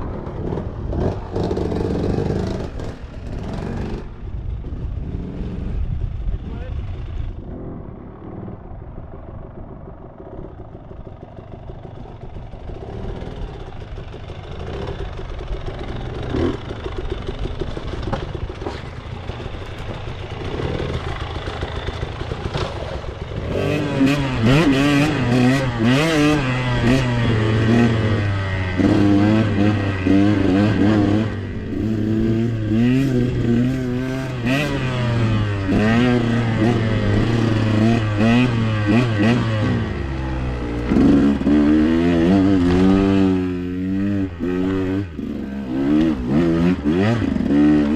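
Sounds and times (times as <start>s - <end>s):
dirt bike engine revving: 12.7s - 47.9s.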